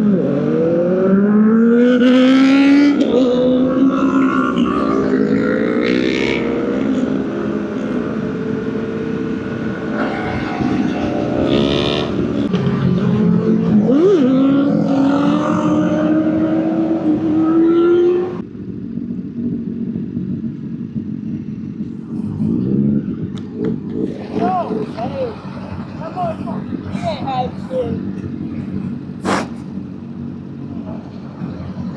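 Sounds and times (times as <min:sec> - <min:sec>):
motorcycle engine accelerating: 0:00.0 - 0:26.9.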